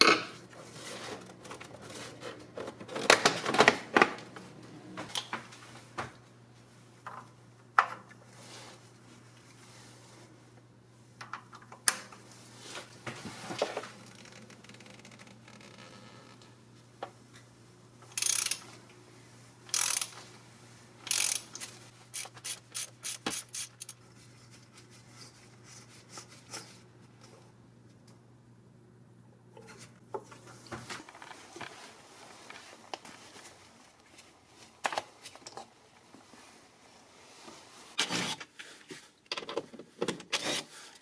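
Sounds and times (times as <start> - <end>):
ratchet clicks: 18.1 - 18.6, 19.7 - 20.2, 21.0 - 24.0.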